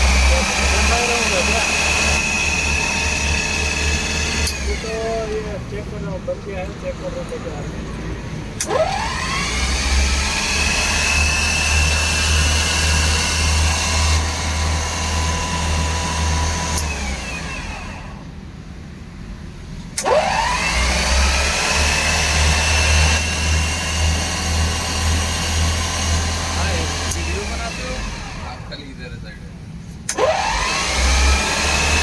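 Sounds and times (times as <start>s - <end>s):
alternator whining: 0.0s - 32.0s
click: 4.4s - 4.6s, 16.7s - 17.0s, 27.1s - 27.3s, 30.0s - 30.3s.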